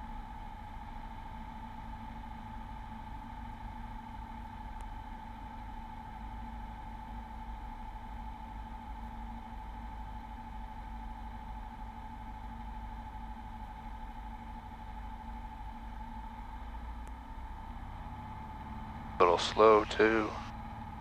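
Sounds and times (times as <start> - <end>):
piston aircraft engine droning: 17.7 - 21.0
steady hum: 18.1 - 21.0.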